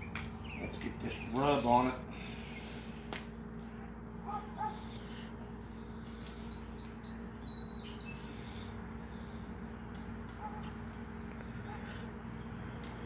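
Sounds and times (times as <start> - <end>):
low background hum: 0.0 - 13.0
faint bird chirps: 6.1 - 8.6.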